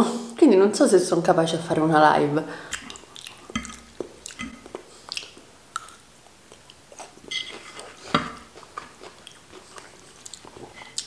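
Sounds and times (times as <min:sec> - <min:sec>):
chewing green beans: 0:02.6 - 0:11.0.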